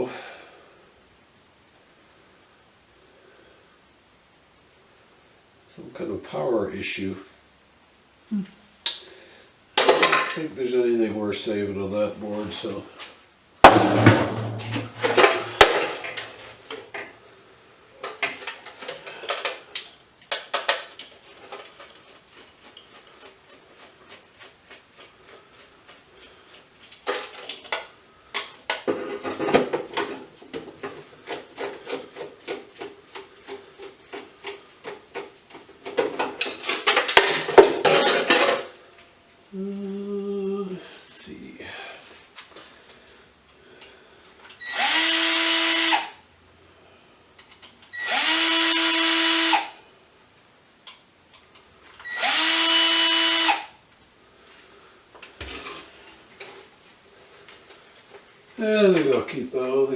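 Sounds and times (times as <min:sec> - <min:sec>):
metal scrap clinking and clattering: 0:13.6 - 0:16.6, 0:36.1 - 0:38.8.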